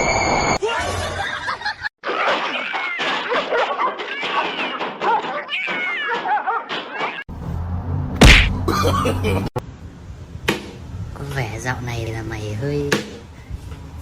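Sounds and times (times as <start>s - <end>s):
cats meowing: 2.4s - 7.3s.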